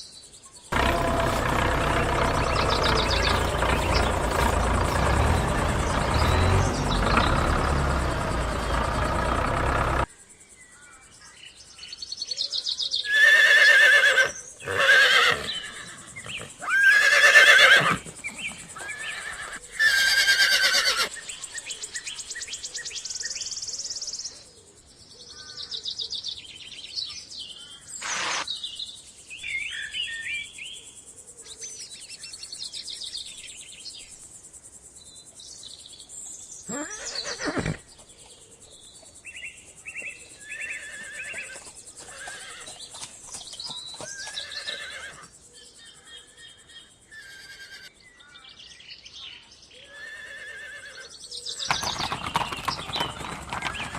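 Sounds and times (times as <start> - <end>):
birds chirping: 0.6 - 10.1, 12.7 - 23.6, 36.6 - 45.1, 50.5 - 53.9
horse whinnying: 13.1 - 21.2, 36.7 - 37.8, 40.5 - 42.8, 44.3 - 45.3, 47.2 - 47.9, 49.9 - 51.1.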